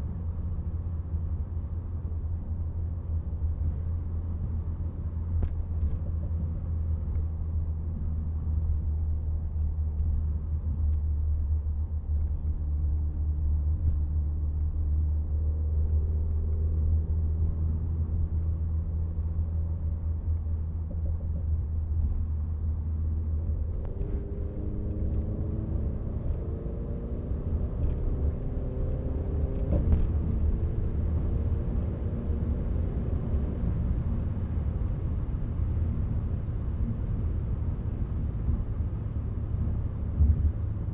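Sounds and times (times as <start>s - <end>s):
car engine accelerating: 23.4s - 34.0s.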